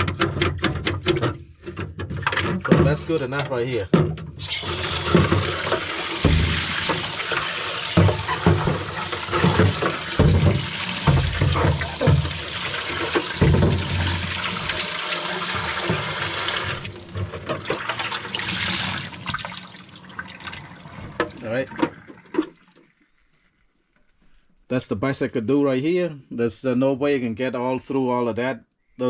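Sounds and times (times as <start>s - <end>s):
water sloshing: 4.4s - 22.9s
tap water running into bucket: 4.4s - 23.0s
low thumps of bucket handled: 5.0s - 17.7s.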